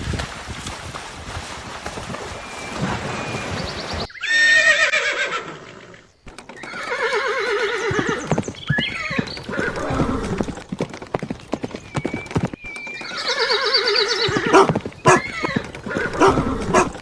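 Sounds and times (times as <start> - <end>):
horse whinnying: 4.1 - 10.6, 12.7 - 17.0.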